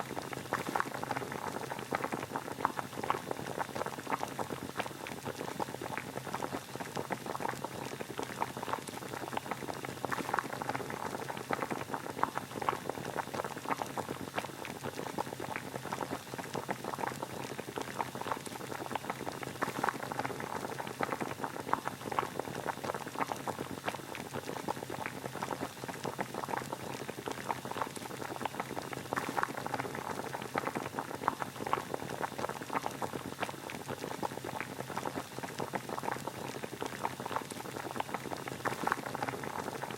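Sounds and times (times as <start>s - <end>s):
water boiling and bubbling: 0.0s - 39.9s.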